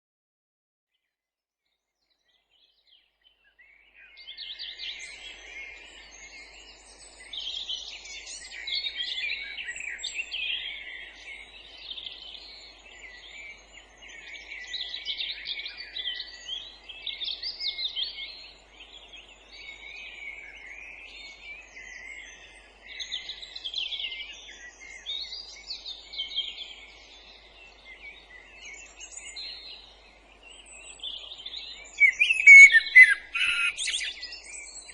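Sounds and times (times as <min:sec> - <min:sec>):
songbirds chorus: 0:02.1 - 0:34.9.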